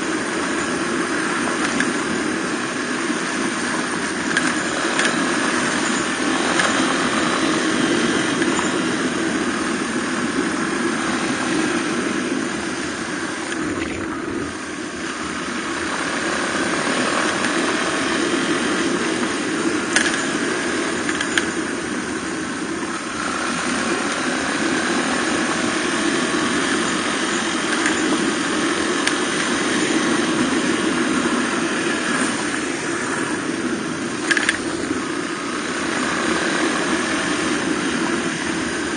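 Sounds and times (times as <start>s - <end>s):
motorcycle engine running: 0.0s - 38.9s
sharp ticks: 1.4s - 2.2s, 3.9s - 8.9s, 16.8s - 23.1s, 25.8s - 29.9s, 34.2s - 35.0s.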